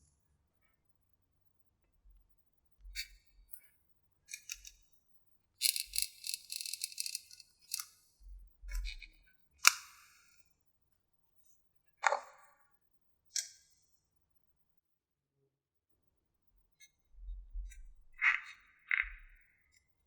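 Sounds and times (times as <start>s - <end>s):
small hard objects rattling: 5.6s - 7.8s.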